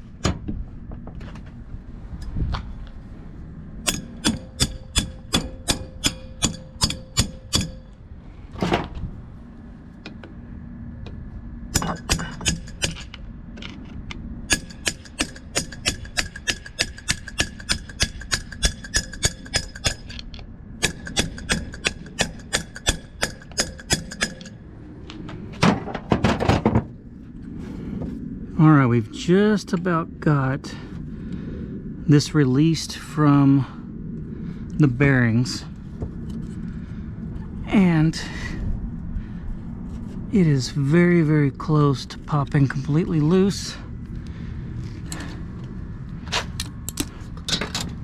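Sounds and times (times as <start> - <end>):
hammer striking steel: 3.8 - 8.0, 11.7 - 13.1, 14.5 - 20.2, 20.8 - 24.6.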